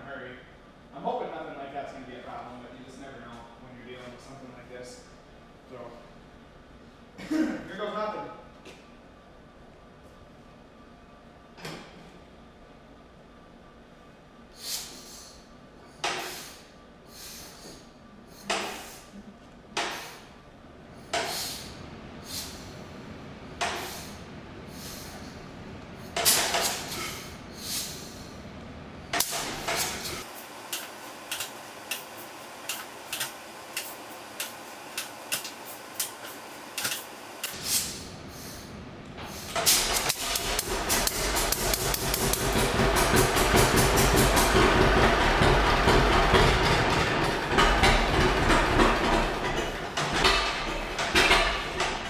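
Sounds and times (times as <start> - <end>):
sharp knocks of hand-starting engine: 39.7 - 52.0
tractor engine popping: 40.2 - 52.0.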